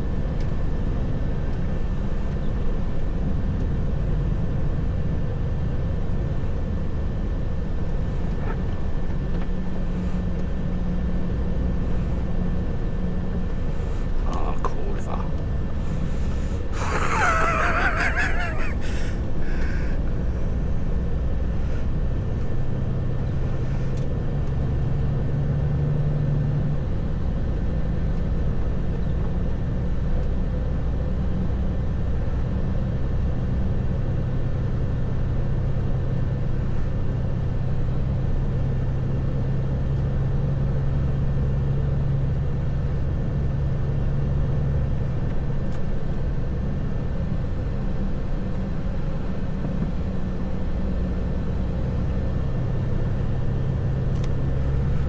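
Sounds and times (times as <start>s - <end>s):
truck engine drone inside cab: 0.0s - 55.0s.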